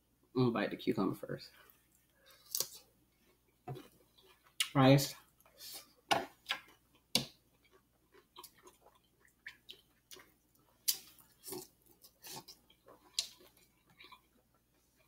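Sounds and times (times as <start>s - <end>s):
person chewing food: 1.5s - 15.0s
mouth smacks and crunches: 2.3s - 2.9s, 5.4s - 14.6s.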